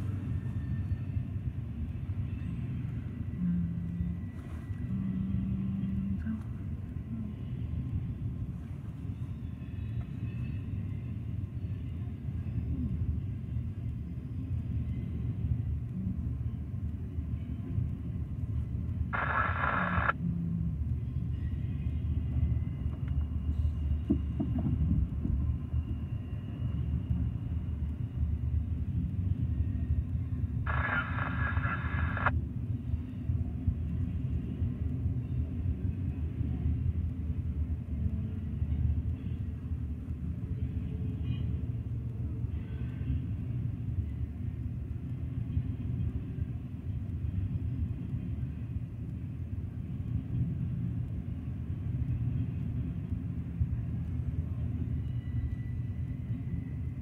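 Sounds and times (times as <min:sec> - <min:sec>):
freight train cars rumbling: 0:00.0 - 0:57.0
radio scanner static: 0:19.2 - 0:20.2, 0:30.7 - 0:32.3.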